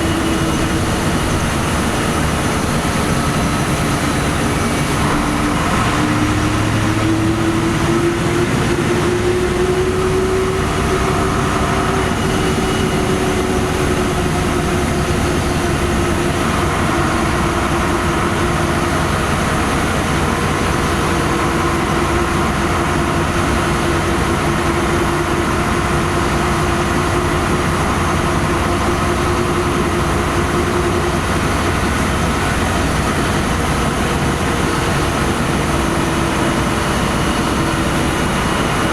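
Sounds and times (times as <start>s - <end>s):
rising whine: 0.0s - 18.5s
bus engine and road noise: 0.0s - 38.9s.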